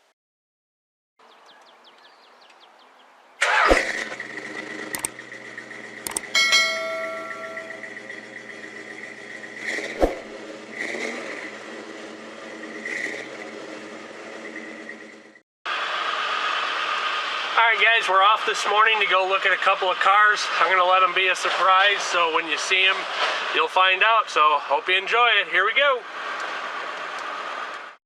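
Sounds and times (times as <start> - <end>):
car engine starting and idling: 3.4 - 22.3
short pitched tone: 6.3 - 8.1.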